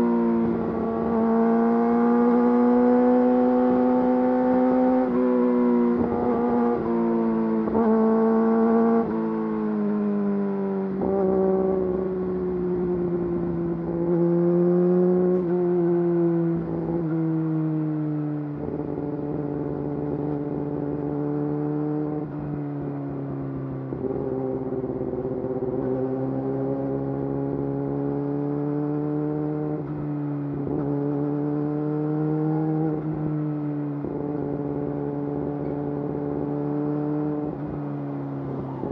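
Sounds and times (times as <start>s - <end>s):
motorcycle engine revving: 0.0s - 10.0s, 23.9s - 33.4s, 34.0s - 37.8s.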